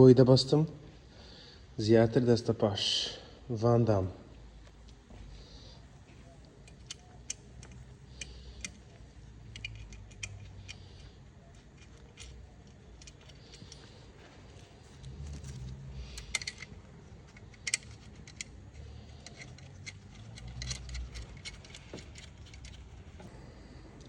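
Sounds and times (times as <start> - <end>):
faint low rumble: 3.2 - 24.0
metallic clicks of hand tools: 6.6 - 11.1, 16.1 - 22.9.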